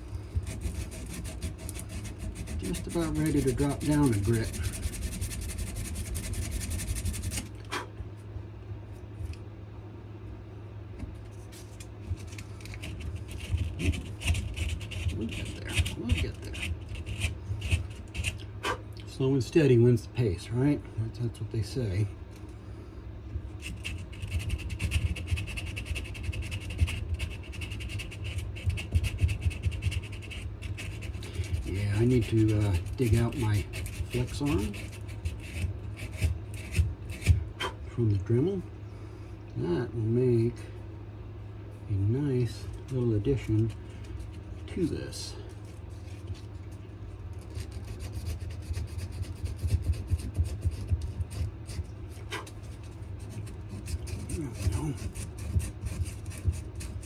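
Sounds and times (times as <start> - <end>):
sandpaper rubbing on wood: 0.4 - 7.5, 12.8 - 18.4, 23.6 - 37.4, 47.4 - 57.0.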